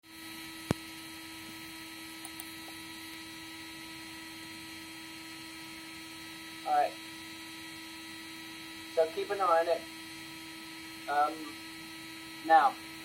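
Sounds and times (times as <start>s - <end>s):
electrical hum with high whine: 0.0s - 13.0s
sharp click: 2.2s - 2.5s.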